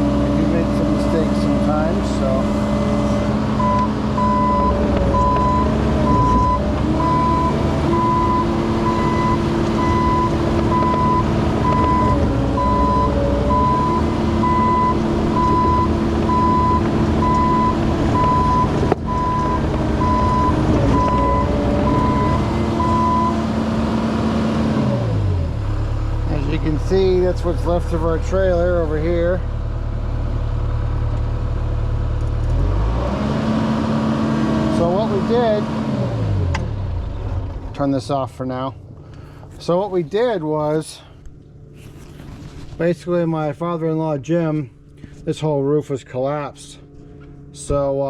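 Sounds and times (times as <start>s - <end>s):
pitched note over engine: 0.0s - 24.0s
diesel engine running: 0.0s - 45.3s
travel alarm beeping: 2.0s - 23.5s.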